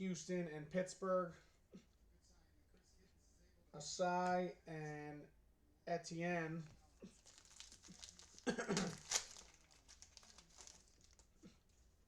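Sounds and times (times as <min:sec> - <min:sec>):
card pack wrappers crinkling: 0:07.1 - 0:11.4.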